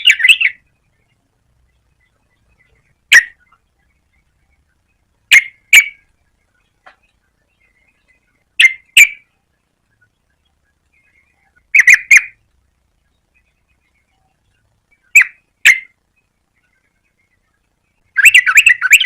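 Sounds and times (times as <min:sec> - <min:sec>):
bulbul calling in sharp notes: 0:00.0 - 0:00.7, 0:05.3 - 0:06.1, 0:06.9 - 0:09.3, 0:10.9 - 0:12.4, 0:13.3 - 0:16.0, 0:16.6 - 0:19.0.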